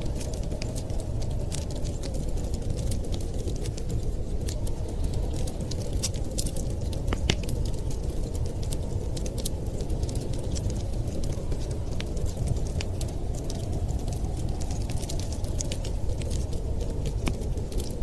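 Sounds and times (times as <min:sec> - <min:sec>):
low fire rumble: 0:00.0 - 0:18.0
wood fire crackling and popping: 0:00.0 - 0:18.0.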